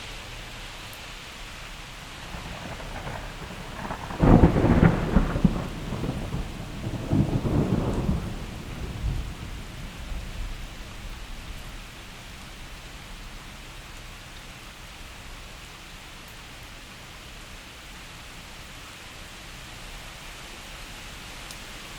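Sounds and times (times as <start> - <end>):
steady rain: 0.0 - 21.9
thunderclap rumbling: 2.2 - 11.5.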